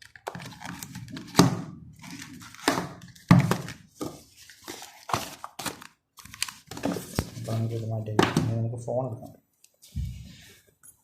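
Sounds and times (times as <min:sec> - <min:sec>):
packaging rustling: 0:00.0 - 0:01.4, 0:02.0 - 0:07.9.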